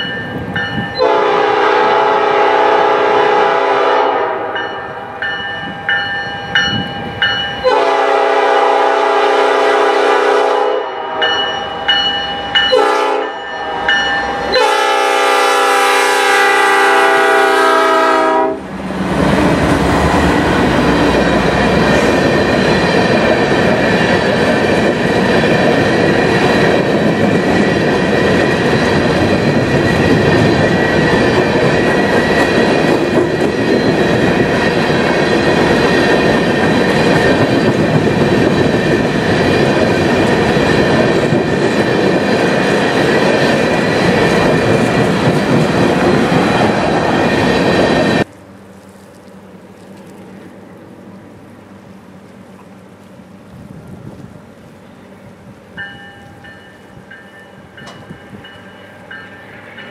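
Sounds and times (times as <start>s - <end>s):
locomotive horn blasts: 1.0s - 5.3s, 7.6s - 11.9s, 12.6s - 18.7s
train wheels clattering on rails: 19.0s - 48.3s, 55.8s - 59.9s.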